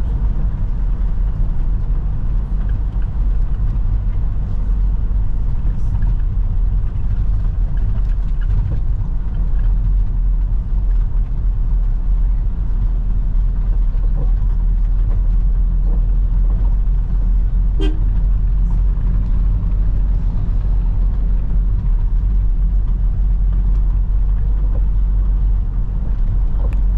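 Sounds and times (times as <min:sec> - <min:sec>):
vehicle engine rumble: 0:00.0 - 0:26.9
short horn toot: 0:17.7 - 0:18.2.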